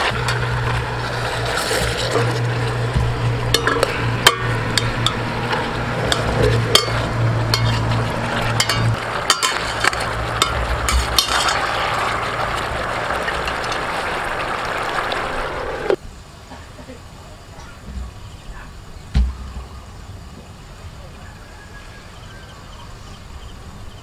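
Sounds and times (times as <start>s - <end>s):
chicken sizzling in a pot: 0.0s - 16.0s
low hum: 0.0s - 16.0s.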